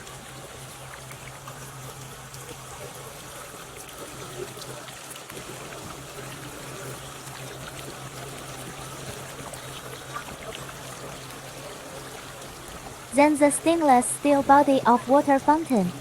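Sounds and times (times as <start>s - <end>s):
water fountain trickling: 0.0s - 16.0s
steady low hum: 5.5s - 16.0s.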